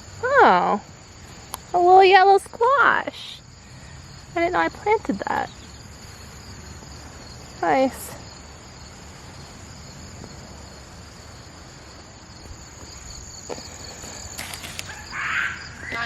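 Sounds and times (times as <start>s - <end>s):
insects trilling: 0.0s - 16.0s
brief rustle: 13.9s - 15.1s.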